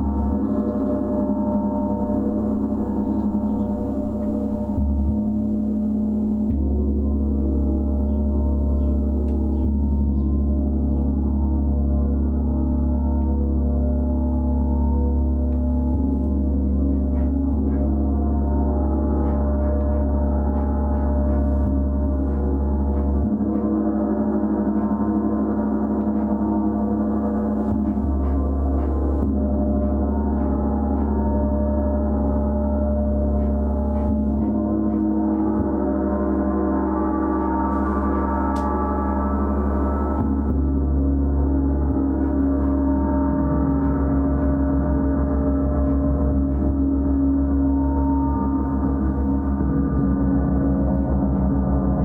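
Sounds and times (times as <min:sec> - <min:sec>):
gong shimmering: 0:17.6 - 0:52.0.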